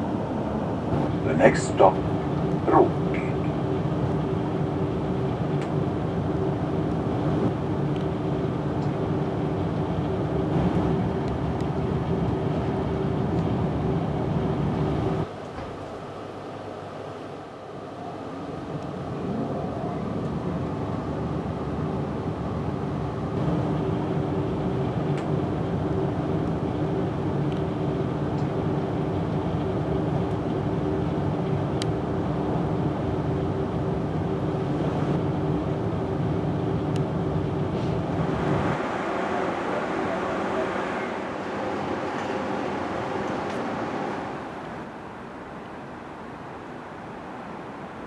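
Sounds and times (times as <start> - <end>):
electrical hum: 0.0 - 15.3
train rumbling on rails: 0.0 - 48.0.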